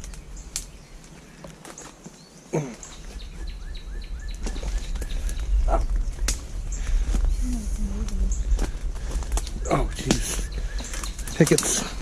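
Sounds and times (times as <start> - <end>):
low outdoor rumble: 2.6 - 12.0.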